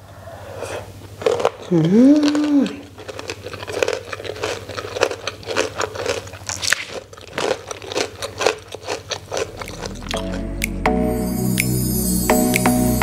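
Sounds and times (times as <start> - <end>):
person chewing crunchy food: 0.5 - 10.8.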